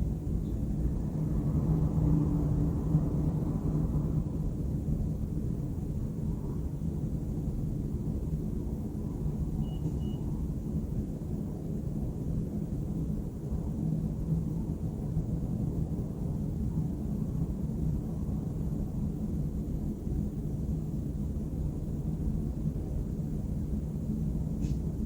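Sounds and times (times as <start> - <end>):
traffic rumble: 0.0 - 9.6.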